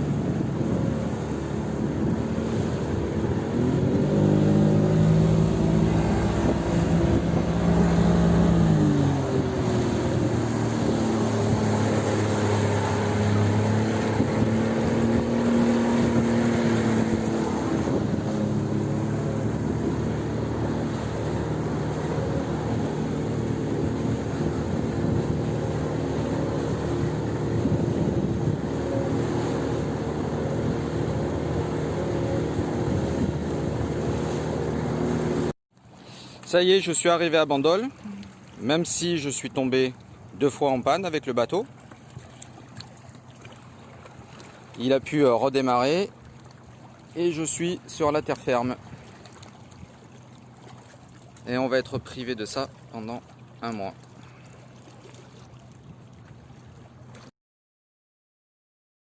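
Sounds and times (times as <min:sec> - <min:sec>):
outboard motor running: 0:00.0 - 0:57.3
water noise: 0:00.0 - 0:57.3
wind: 0:00.0 - 0:57.3.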